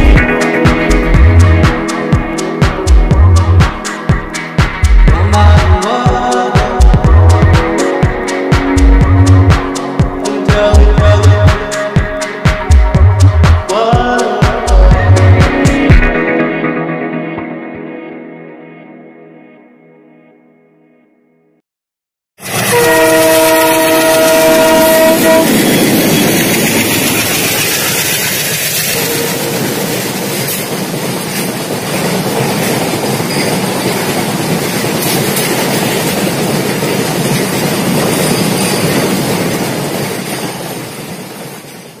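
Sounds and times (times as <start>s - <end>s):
train horn: 22.4s - 27.0s, 28.8s - 30.6s
train rumbling past on rails: 22.4s - 42.0s.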